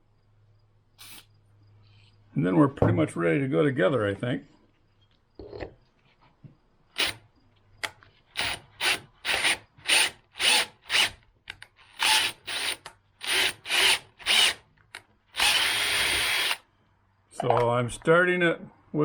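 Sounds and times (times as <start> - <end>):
power drill trigger bursts: 1.0 - 1.3, 7.0 - 7.2, 8.4 - 11.2, 11.9 - 14.6, 15.4 - 16.6.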